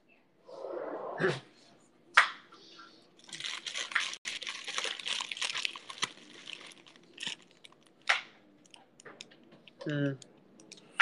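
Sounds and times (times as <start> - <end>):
plastic bag crinkling: 3.2 - 8.8.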